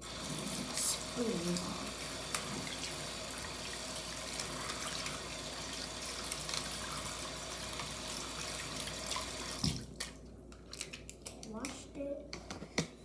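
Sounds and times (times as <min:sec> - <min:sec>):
tap water running into sink: 0:00.0 - 0:10.1.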